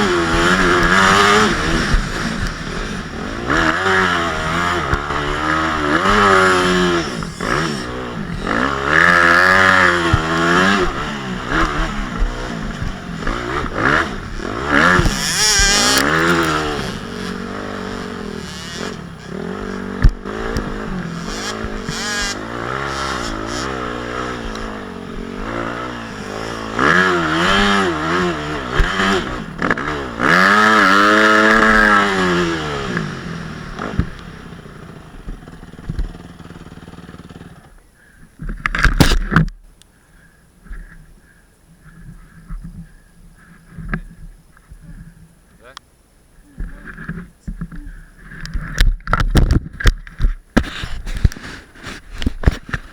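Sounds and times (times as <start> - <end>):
motocross bike engine revving: 0.0 - 37.8.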